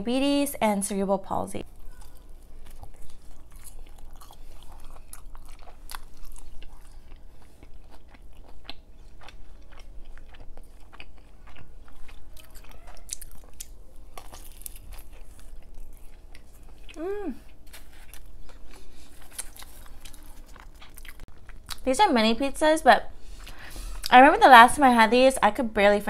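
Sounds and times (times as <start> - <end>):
person chewing crunchy food: 1.6 - 21.8.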